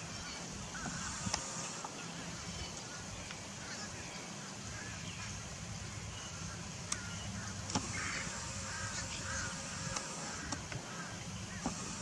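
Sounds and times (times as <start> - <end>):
background hiss and hum: 0.0 - 12.0
birds chirping: 0.0 - 12.0.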